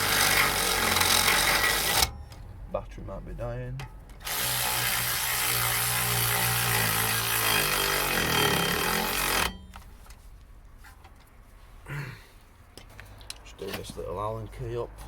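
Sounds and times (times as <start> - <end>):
cordless power tool running: 0.0 - 2.1, 4.2 - 9.5.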